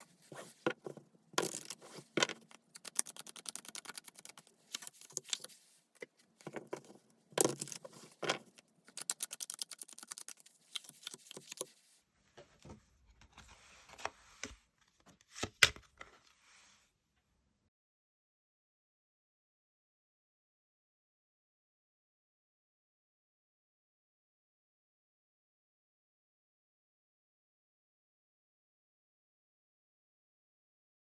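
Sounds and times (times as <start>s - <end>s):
cards rustling: 0.0s - 5.7s, 6.5s - 11.8s
cards shuffling with fluttering clicks: 1.4s - 5.6s, 7.4s - 11.7s.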